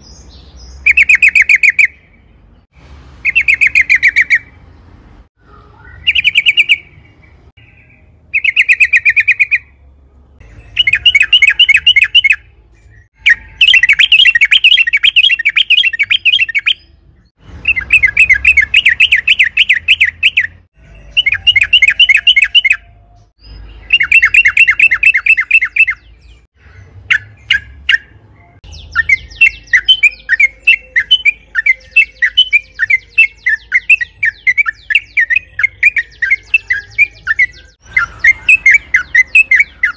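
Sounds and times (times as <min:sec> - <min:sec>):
bird singing fast chattering phrases: 0:00.0 - 0:02.6, 0:03.2 - 0:04.7, 0:05.8 - 0:09.7, 0:10.4 - 0:39.9.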